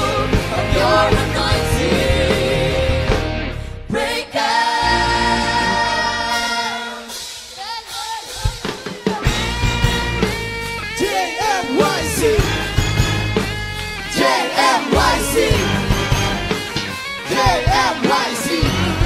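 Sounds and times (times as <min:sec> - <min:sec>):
guitar: 0:00.0 - 0:07.3, 0:08.3 - 0:19.0
group singing a worship song: 0:00.0 - 0:07.6, 0:11.0 - 0:13.0, 0:14.1 - 0:19.0
drums: 0:00.0 - 0:19.0.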